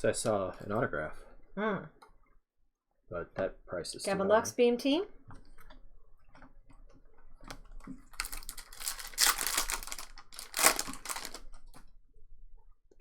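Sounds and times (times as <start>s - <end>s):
cards being flipped through: 8.2s - 11.5s.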